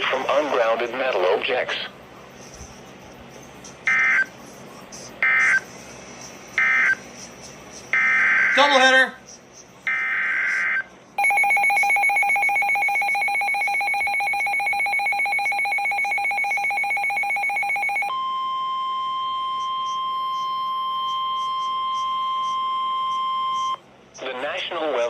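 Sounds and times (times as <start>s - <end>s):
steady alarm tone: 3.9s - 4.3s, 5.2s - 5.6s, 6.6s - 7.0s, 8.0s - 9.0s, 9.9s - 23.8s
pulsing two-tone alert signal: 6.6s - 7.0s, 8.0s - 8.6s, 9.9s - 23.8s.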